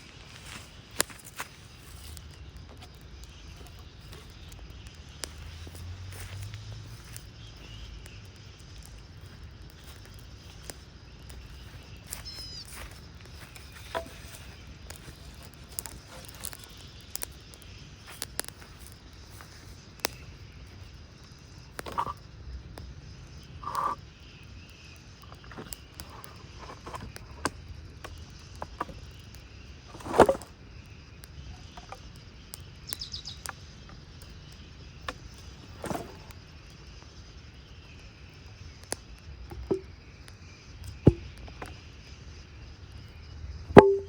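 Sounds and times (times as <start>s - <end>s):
low outdoor background: 0.0s - 44.0s
bird chirp: 0.4s - 44.0s.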